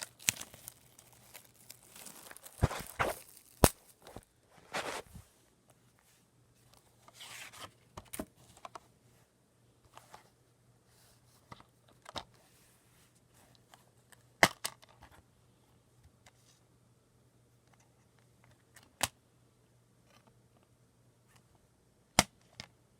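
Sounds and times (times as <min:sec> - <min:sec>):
plastic packaging tearing: 0:00.0 - 0:04.2.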